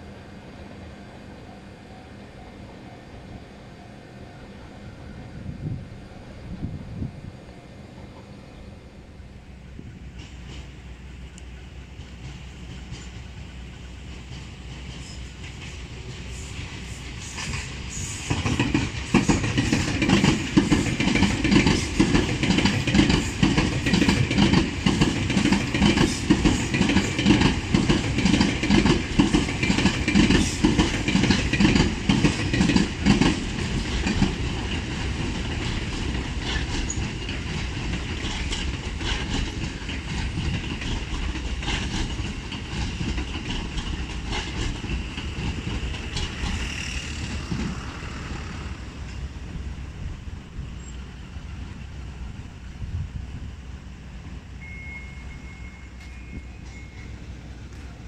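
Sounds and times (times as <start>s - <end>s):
train running rumble: 0.0s - 58.0s
train wheels clacking on rail joints: 10.1s - 49.3s.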